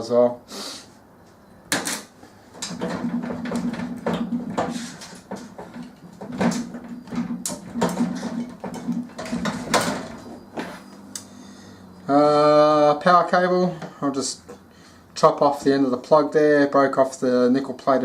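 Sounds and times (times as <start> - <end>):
parts knocking and clunking: 1.7 - 11.0.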